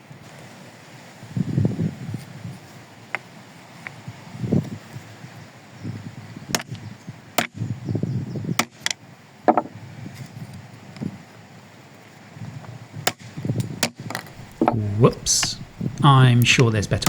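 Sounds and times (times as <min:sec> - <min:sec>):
dull wooden thuds: 0:09.5 - 0:09.8, 0:14.1 - 0:16.1.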